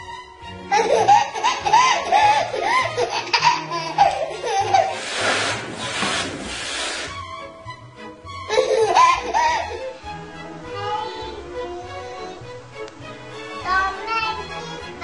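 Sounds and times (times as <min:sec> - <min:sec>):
baby laughing: 0:00.7 - 0:05.6, 0:08.5 - 0:10.0
breathy rushing noise: 0:04.8 - 0:07.3.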